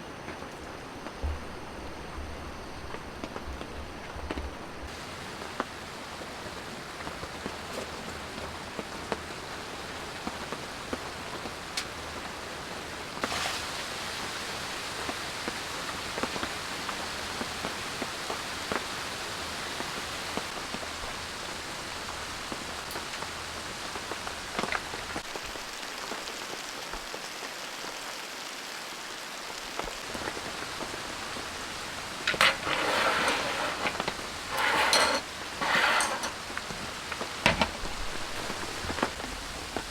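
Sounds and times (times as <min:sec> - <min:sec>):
steady rain falling: 0:00.0 - 0:39.9
knocks and rustling: 0:32.2 - 0:39.2.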